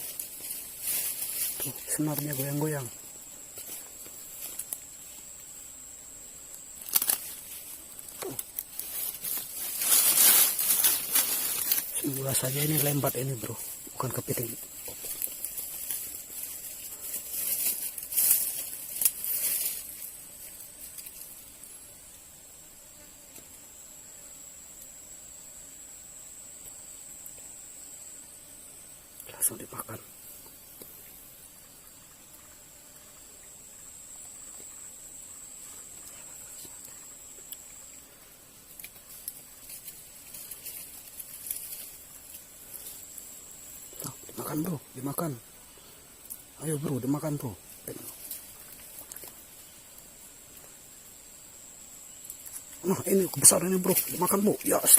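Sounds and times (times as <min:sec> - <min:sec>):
rustling and crinkling: 0:00.0 - 0:05.2, 0:06.6 - 0:21.4, 0:34.5 - 0:44.8, 0:46.2 - 0:50.7
high-pitched insect trill: 0:00.0 - 0:54.9.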